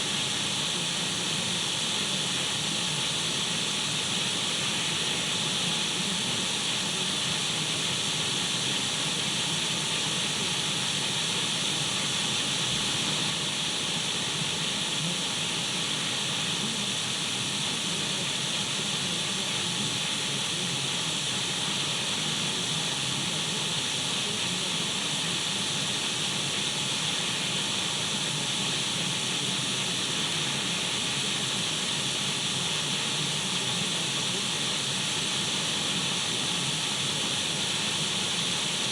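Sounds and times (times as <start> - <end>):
radio static hiss: 26.0 - 38.9.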